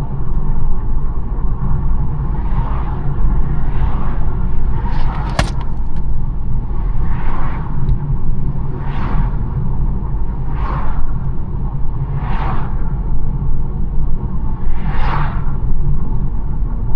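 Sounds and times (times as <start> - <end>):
tyres and engine rumble: 4.7 - 6.2.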